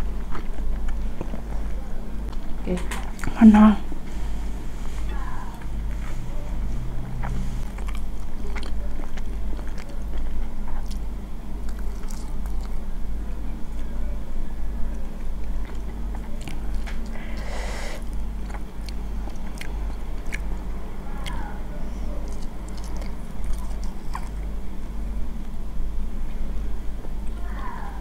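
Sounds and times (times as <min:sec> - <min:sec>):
chewing noodles: 0:00.0 - 0:03.4, 0:05.5 - 0:12.9, 0:14.9 - 0:24.8
steady low hum: 0:00.0 - 0:28.0.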